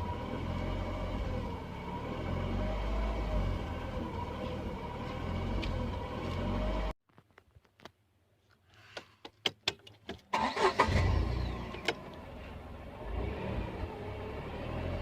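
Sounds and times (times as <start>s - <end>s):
car engine running and idling: 0.0s - 7.0s, 10.4s - 15.0s.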